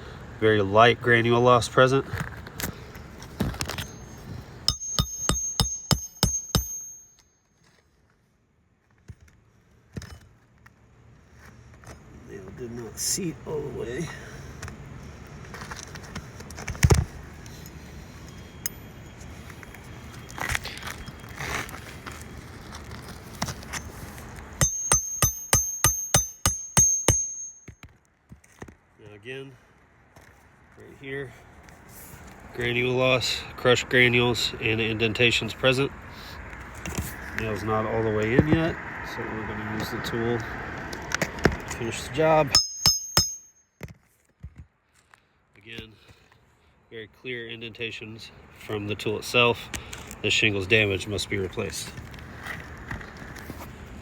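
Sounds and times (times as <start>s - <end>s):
hammer striking nail: 4.7s - 7.2s, 24.6s - 27.8s, 42.5s - 43.5s.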